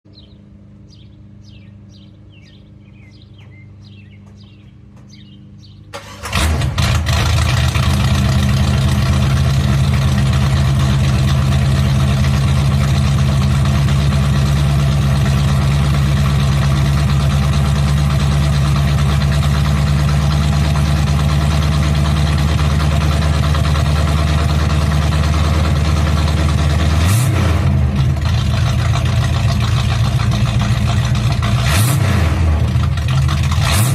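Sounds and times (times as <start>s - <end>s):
car engine starting and idling: 5.6s - 33.9s
engine rev: 6.0s - 33.9s.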